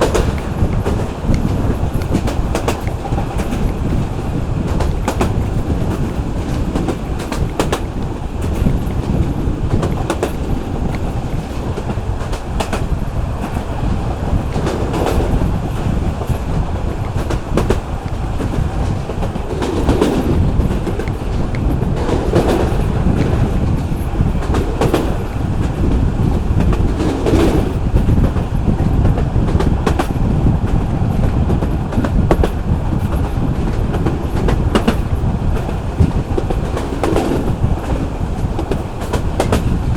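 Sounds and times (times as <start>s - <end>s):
train rumbling on track: 0.0s - 39.9s
wheels clicking over rail joints: 0.0s - 39.9s.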